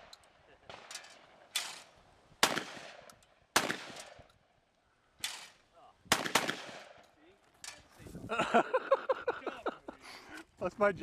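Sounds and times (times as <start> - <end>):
shotgun shots: 0.0 - 4.3, 5.2 - 7.0.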